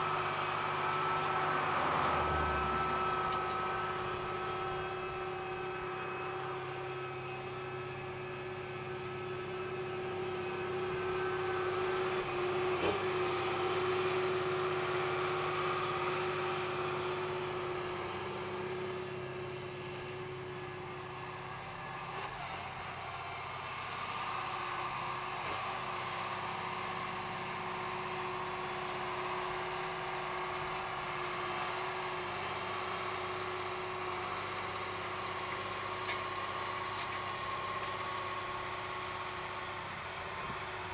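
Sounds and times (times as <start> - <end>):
steady whine: 0.0 - 8.0
tractor diesel engine running: 0.0 - 40.9.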